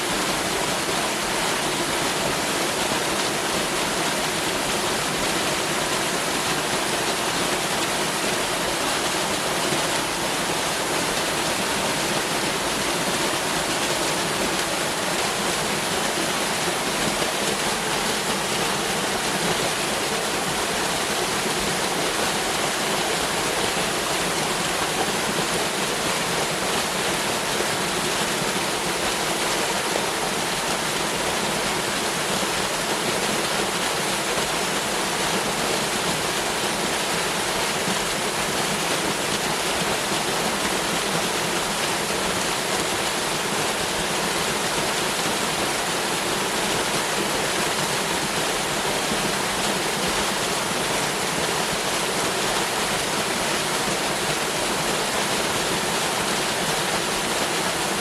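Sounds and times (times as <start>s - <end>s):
waterfall pouring and splashing: 0.0s - 58.0s.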